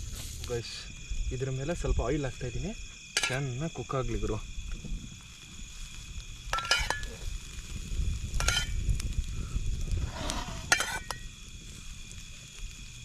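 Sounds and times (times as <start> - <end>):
chicken sizzling on a grill: 0.0 - 13.0
insects chirping: 0.0 - 13.0
metal utensil scraping a grate: 6.6 - 7.1, 8.4 - 8.8, 10.1 - 11.2.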